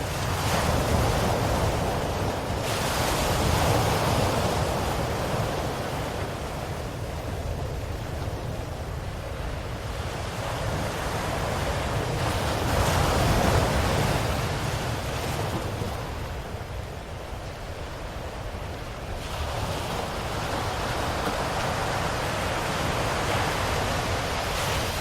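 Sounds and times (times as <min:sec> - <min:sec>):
ocean waves breaking: 0:00.0 - 0:25.0.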